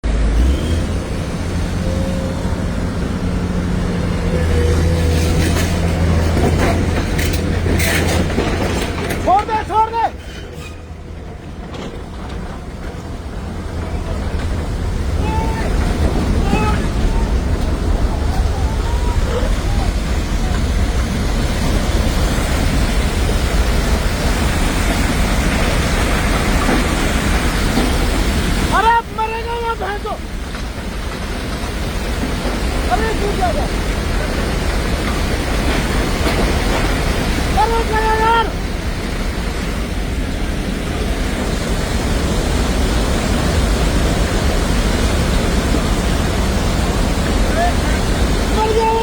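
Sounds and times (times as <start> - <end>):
rushing stream in flood: 0.0 - 49.0.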